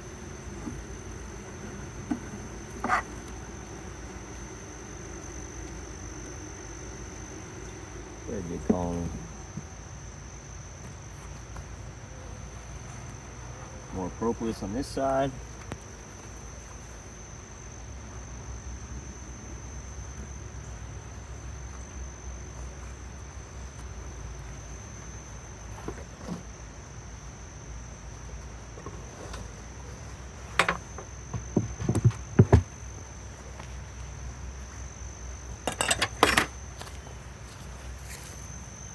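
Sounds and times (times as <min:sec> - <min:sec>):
high-pitched insect trill: 0:00.0 - 0:38.9
wooden hive parts clattering: 0:00.1 - 0:05.8, 0:28.7 - 0:33.6, 0:35.6 - 0:38.3.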